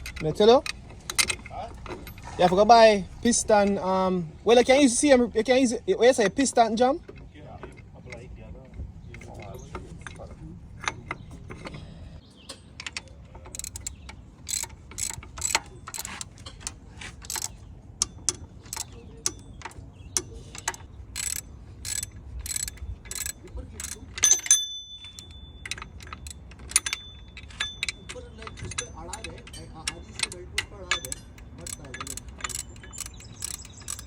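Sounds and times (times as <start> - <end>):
ratchet wrench clicking: 0.0 - 3.8, 12.8 - 34.0
metal clink: 9.2 - 34.0.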